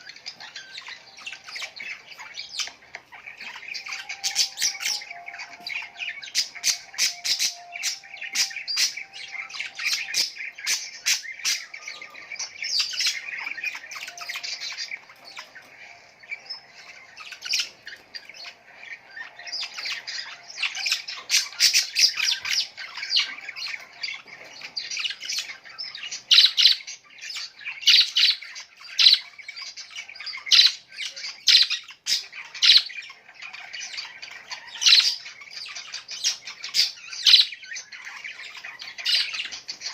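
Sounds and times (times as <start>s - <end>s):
small birds chattering: 0.0s - 39.9s.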